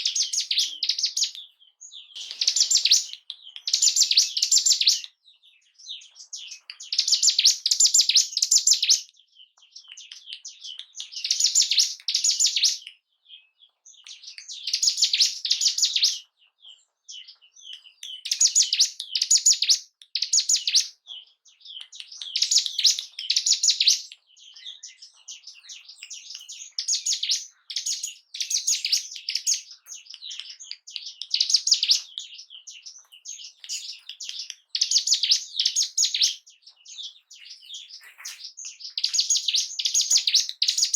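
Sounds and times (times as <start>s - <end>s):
bird high chirping bursts: 0.0s - 5.1s, 21.7s - 40.9s
soft bird twittering: 0.0s - 40.9s.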